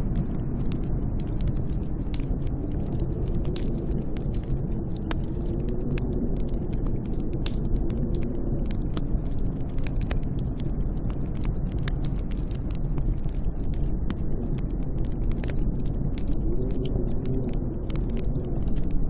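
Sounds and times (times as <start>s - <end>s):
deep rumble of storm wind: 0.0s - 19.0s
sharp crackles: 0.0s - 19.0s.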